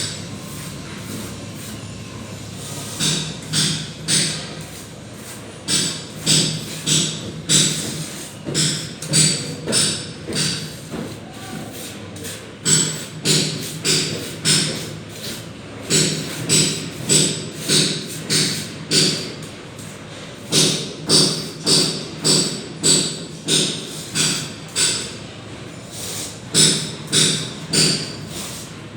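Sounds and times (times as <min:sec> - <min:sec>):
trowel scraping plaster on wall: 0:00.4 - 0:01.8, 0:02.5 - 0:20.5.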